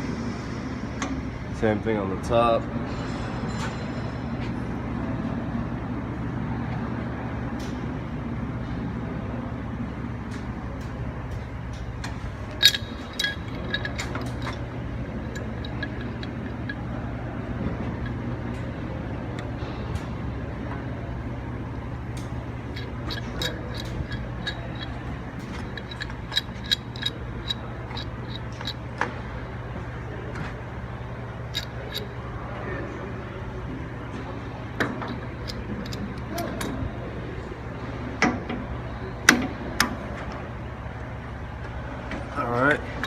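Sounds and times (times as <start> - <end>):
steady low hum: 0.0 - 43.0
tools clinking on metal fittings: 11.7 - 18.6, 22.2 - 29.1, 31.5 - 32.2, 34.8 - 37.0
metal clank: 12.5 - 17.0, 22.8 - 28.8.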